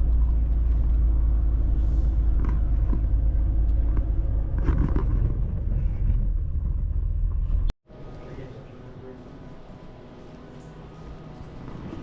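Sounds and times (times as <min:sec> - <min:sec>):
van engine and road rumble: 0:00.0 - 0:07.8.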